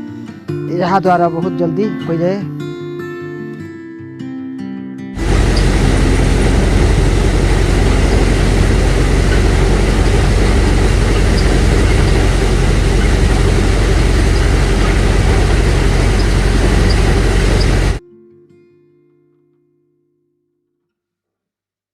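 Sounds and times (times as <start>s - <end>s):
low engine hum: 5.2s - 18.0s
thresher machine drone: 5.2s - 18.0s
threshing noise: 5.2s - 18.0s.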